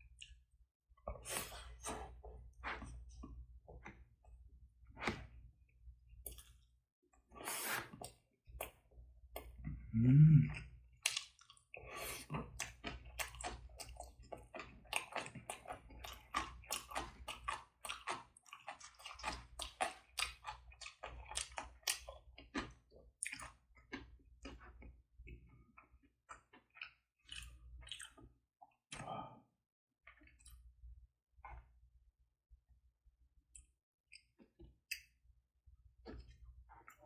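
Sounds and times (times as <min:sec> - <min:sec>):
person chewing food: 0:01.1 - 0:04.1, 0:06.2 - 0:06.7, 0:10.5 - 0:29.0, 0:36.0 - 0:37.0.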